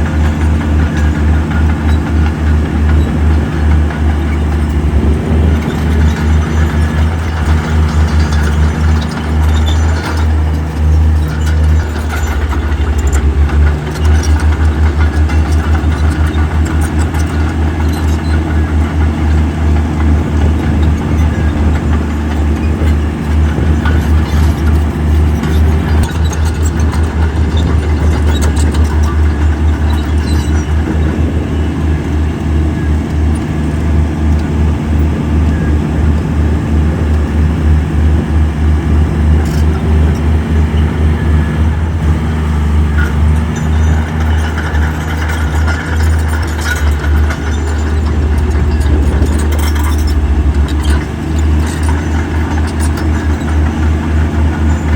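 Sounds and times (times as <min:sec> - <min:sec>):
heavy diesel engine throbbing: 0:00.0 - 0:54.9
sharp metal clanks: 0:42.9 - 0:54.9.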